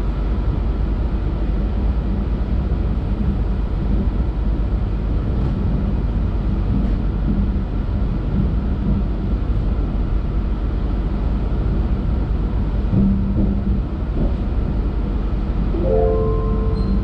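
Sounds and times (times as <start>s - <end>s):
train rumbling inside coach: 0.0s - 17.0s
faint hum: 15.7s - 17.0s.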